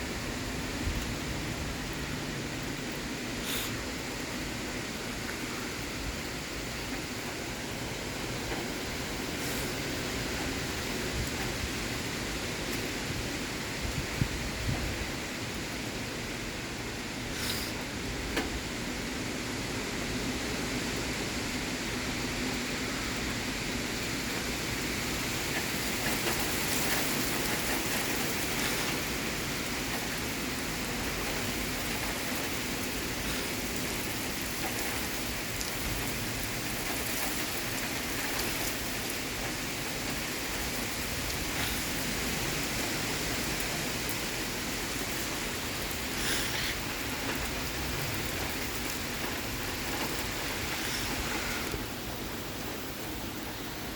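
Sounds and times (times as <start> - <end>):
heavy rain: 0.0 - 53.9.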